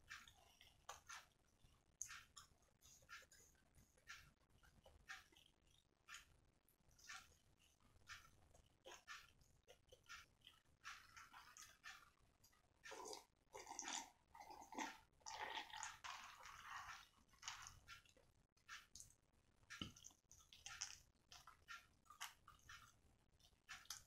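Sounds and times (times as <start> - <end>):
person chewing crispy chicken: 12.8 - 18.2, 19.8 - 22.9.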